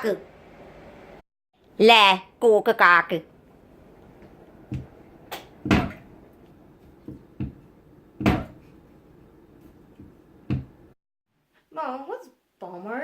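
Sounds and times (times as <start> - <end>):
sharp knocks and bumps: 4.7 - 6.1, 8.2 - 8.6, 10.0 - 10.9.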